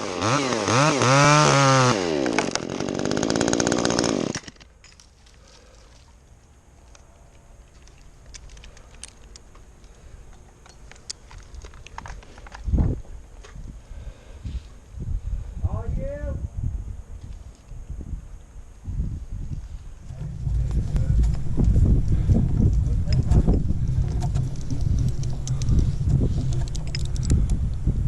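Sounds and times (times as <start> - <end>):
chainsaw revving: 0.0 - 4.6
rustling: 19.6 - 27.8.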